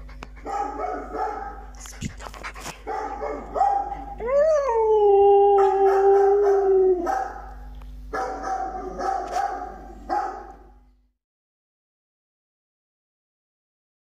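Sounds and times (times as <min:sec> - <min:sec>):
dog barking: 0:00.4 - 0:01.7, 0:02.8 - 0:04.2, 0:05.6 - 0:10.6
dog howling: 0:03.0 - 0:07.4.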